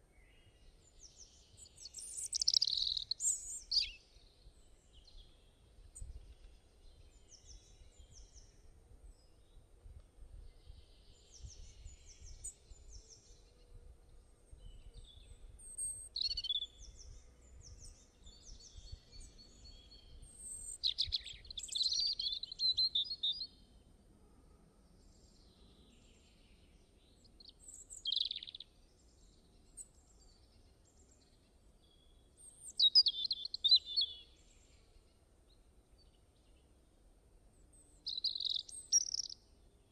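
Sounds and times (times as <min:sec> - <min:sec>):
birds chirping and singing: 0:01.8 - 0:04.0, 0:27.6 - 0:28.6, 0:32.6 - 0:34.2, 0:38.0 - 0:39.4
faint wind rumble: 0:04.4 - 0:15.7.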